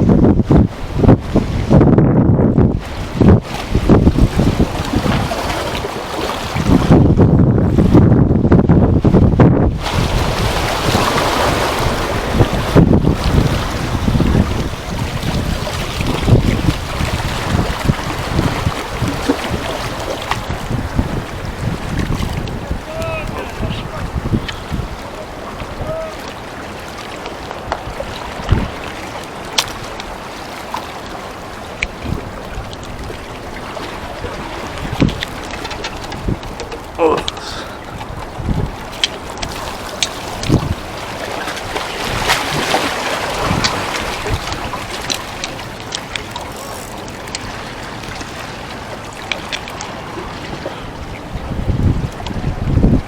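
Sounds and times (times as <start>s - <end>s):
wind: 0.0s - 53.0s
rushing water: 2.6s - 53.0s
small irregular clicks: 44.4s - 47.5s.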